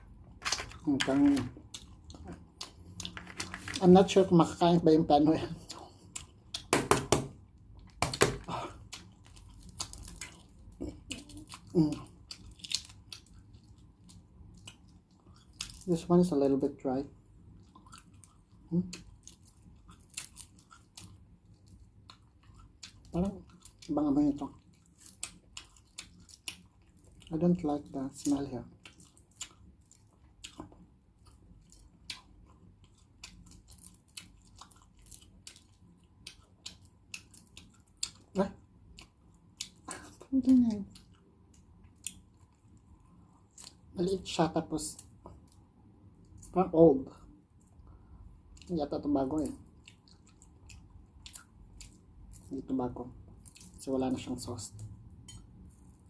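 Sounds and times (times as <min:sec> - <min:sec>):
wet chewing: 0:00.6 - 0:03.8, 0:05.5 - 0:06.7, 0:07.6 - 0:16.0, 0:17.4 - 0:27.4, 0:28.3 - 0:43.9, 0:49.3 - 0:52.5.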